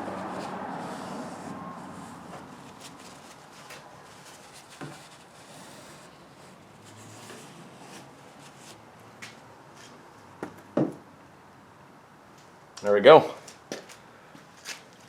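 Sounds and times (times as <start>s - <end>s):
rubbing and handling sounds: 0.0s - 8.9s.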